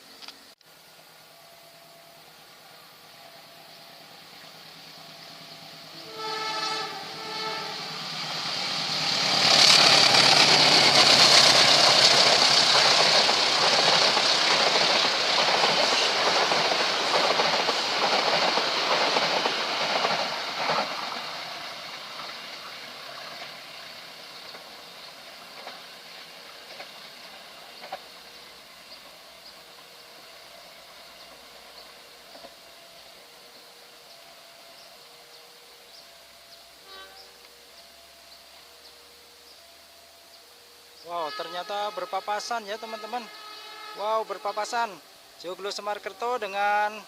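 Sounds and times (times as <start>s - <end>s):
passenger train passing: 0.0s - 47.0s
wheels clattering over rail joints: 24.4s - 29.6s.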